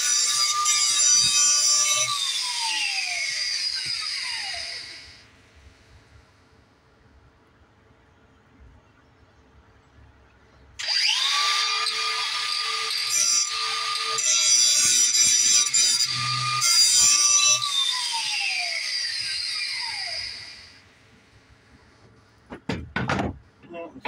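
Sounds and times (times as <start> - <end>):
electric grinder whining: 0.0 - 5.2, 10.8 - 20.8.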